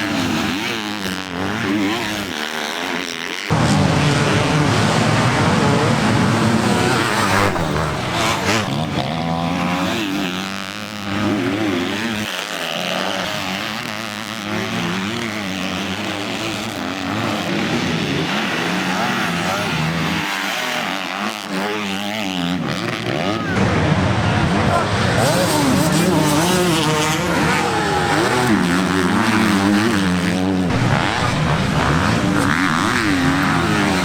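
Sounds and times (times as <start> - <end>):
motocross engines revving: 0.0 - 34.0.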